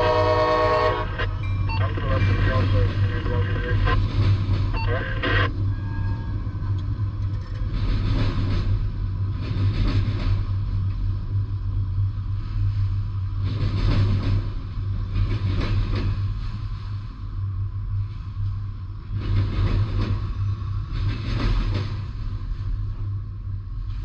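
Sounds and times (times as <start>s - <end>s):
train wheels rumbling: 0.0s - 24.0s.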